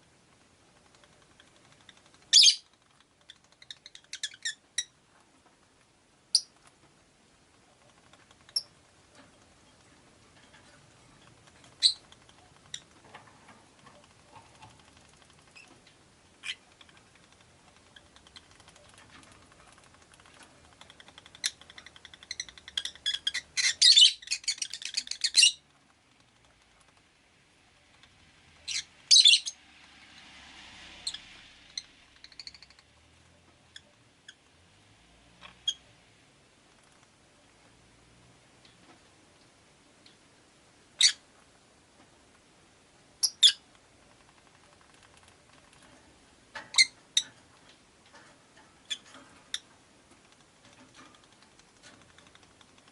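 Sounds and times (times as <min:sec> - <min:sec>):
lovebirds chirping: 0:01.8 - 0:05.0, 0:11.6 - 0:13.0, 0:20.8 - 0:25.6, 0:28.6 - 0:29.6.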